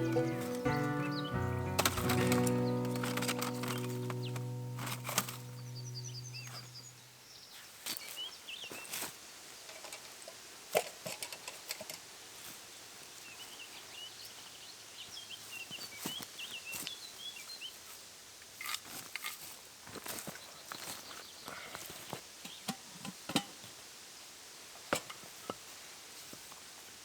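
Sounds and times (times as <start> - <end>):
background music: 0.0 - 6.8
small birds chirping: 0.0 - 9.0, 13.2 - 17.8
sharp clicks and knocks: 1.8 - 5.6.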